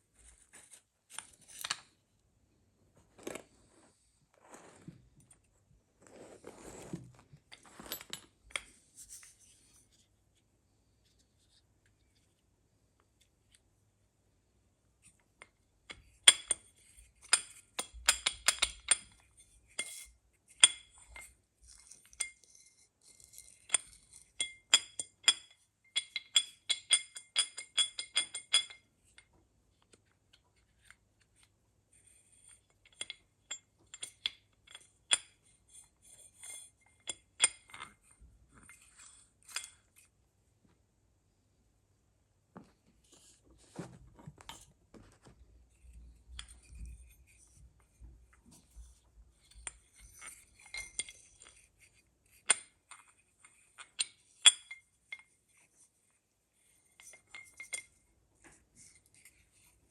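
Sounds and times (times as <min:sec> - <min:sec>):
metal tools clinking: 0:07.5 - 0:08.3.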